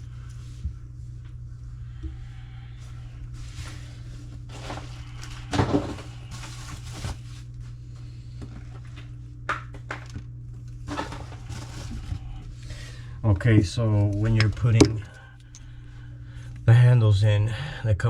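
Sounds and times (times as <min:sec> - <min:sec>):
steady low hum: 0:00.0 - 0:18.0
knocks and rubbing of plumbing parts: 0:13.4 - 0:15.2.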